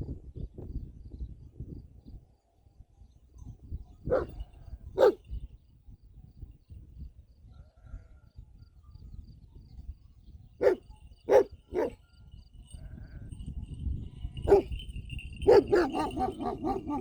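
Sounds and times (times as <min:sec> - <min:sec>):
dog barking: 0:04.1 - 0:04.4, 0:05.0 - 0:05.2, 0:10.6 - 0:12.0, 0:14.5 - 0:14.8, 0:15.4 - 0:17.0.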